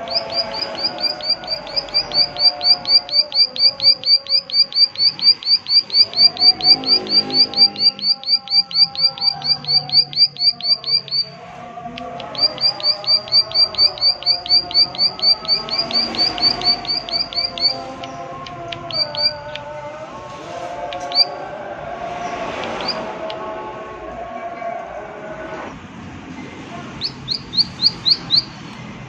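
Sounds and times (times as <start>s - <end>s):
low steady tones: 0.0s - 29.0s.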